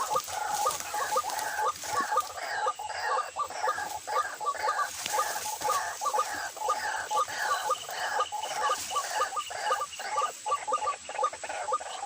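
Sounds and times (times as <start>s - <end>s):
waterhen croaking calls: 0.0s - 12.0s.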